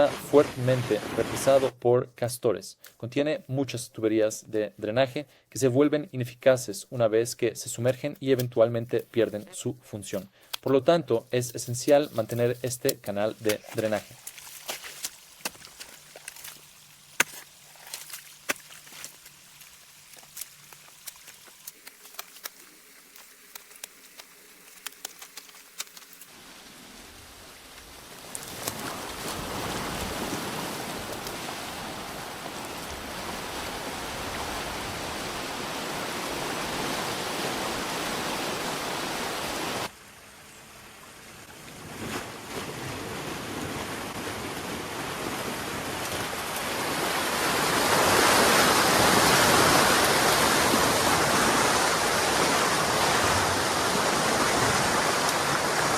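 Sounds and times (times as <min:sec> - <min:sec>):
water rushing through a dam: 0:44.8 - 0:55.9.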